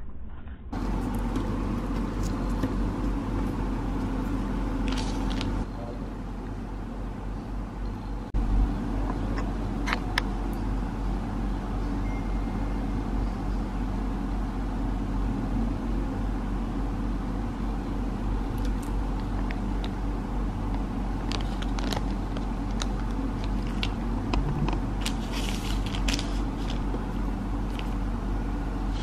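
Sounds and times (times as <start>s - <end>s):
steady low hum: 0.0s - 29.0s
plastic wrappers crinkling: 4.8s - 5.6s, 20.7s - 24.0s, 24.7s - 27.0s.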